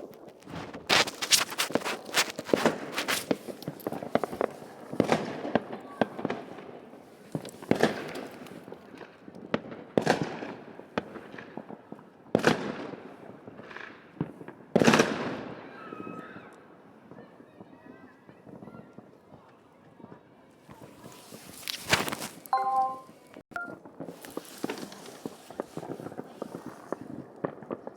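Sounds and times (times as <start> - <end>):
fireworks cracking: 0.0 - 11.8, 20.7 - 27.9
fireworks exploding: 0.0 - 15.6, 23.6 - 27.9.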